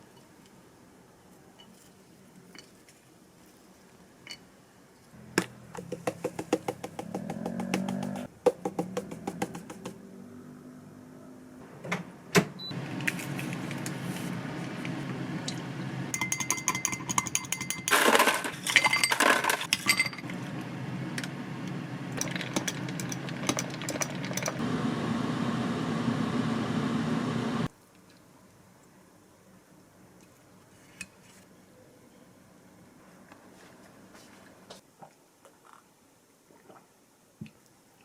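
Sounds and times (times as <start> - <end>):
utensils and cookware clinking: 16.1 - 20.3
steady hum: 24.6 - 27.7.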